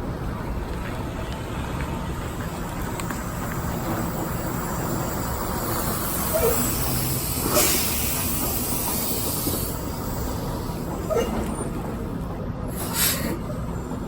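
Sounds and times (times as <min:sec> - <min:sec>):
truck engine running: 0:00.0 - 0:14.0
air hiss: 0:04.4 - 0:10.9, 0:12.7 - 0:13.5.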